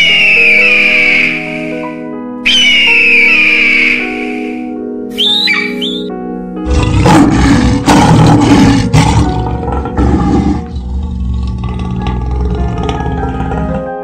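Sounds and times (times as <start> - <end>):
background music: 0.0 - 14.0
lion roaring: 6.6 - 14.0.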